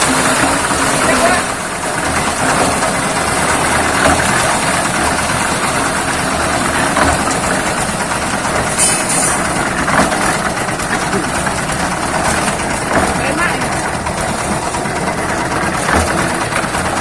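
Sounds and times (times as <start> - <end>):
concrete mixer engine running: 0.0 - 17.0
short hissing burst: 8.8 - 9.4.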